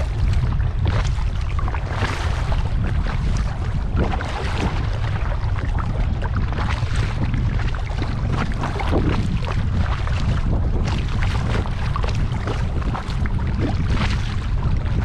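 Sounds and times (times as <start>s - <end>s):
kayak paddle splashing in water: 0.0s - 15.0s
wind rumble on microphone: 0.0s - 15.0s.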